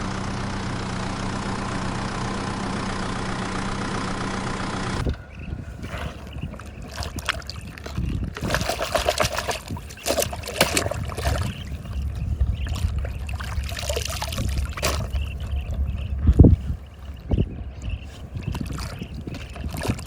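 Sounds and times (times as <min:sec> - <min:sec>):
water trickling and splashing: 0:05.0 - 0:20.0.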